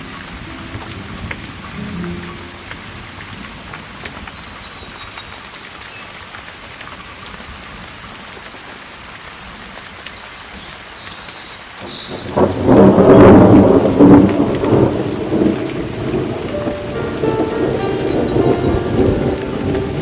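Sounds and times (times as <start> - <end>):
steady rain: 0.0 - 20.0
deep thunder rumble: 12.2 - 20.0.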